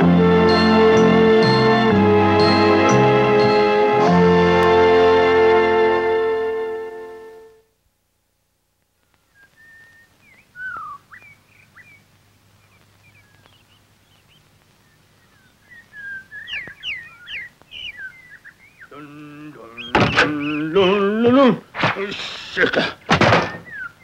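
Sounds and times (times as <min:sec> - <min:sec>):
music: 0:00.0 - 0:07.7
birds chirping and whistling: 0:09.2 - 0:21.2, 0:23.3 - 0:24.0.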